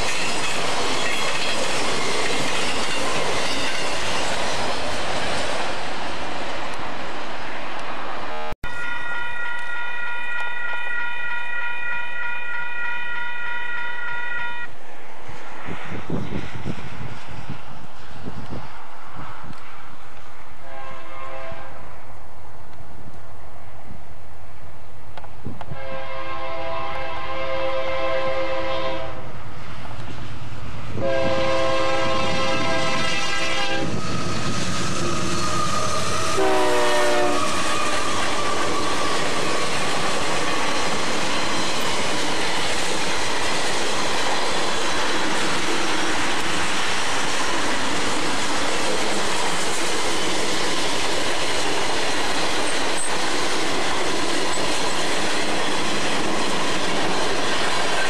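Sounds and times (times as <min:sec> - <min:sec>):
locomotive air horn blasts: 0:08.6 - 0:14.7, 0:20.6 - 0:21.8, 0:25.7 - 0:29.3, 0:31.0 - 0:34.0, 0:35.5 - 0:38.1.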